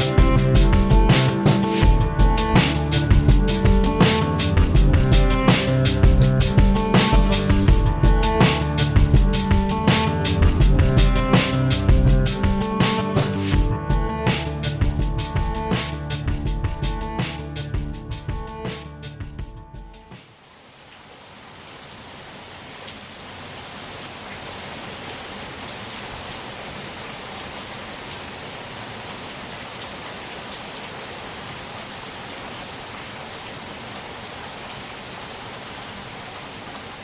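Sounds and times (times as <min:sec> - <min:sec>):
steady rain falling: 0:00.0 - 0:13.6, 0:19.9 - 0:37.0.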